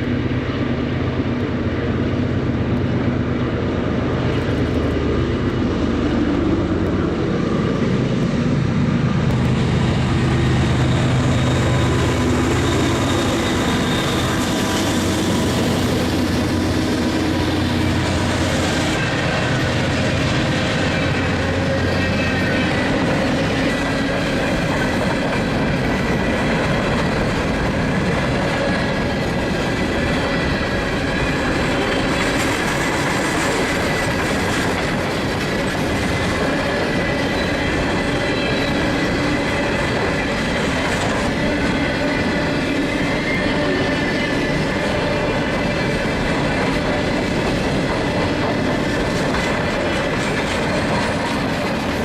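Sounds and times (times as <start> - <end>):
freight train wheels rumbling: 0.0 - 52.0
wheel squeal: 10.8 - 18.5.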